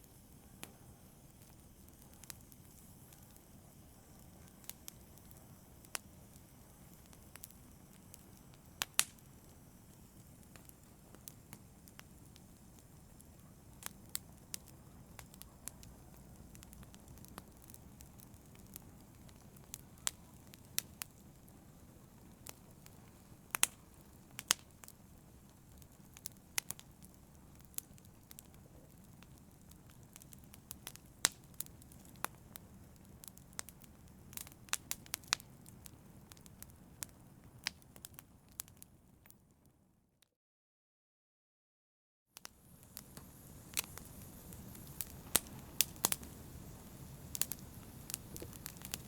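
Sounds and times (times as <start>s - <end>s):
fire popping and snapping: 0.0s - 39.6s, 42.4s - 49.0s
wood fire crackling: 0.0s - 39.7s, 42.4s - 49.0s.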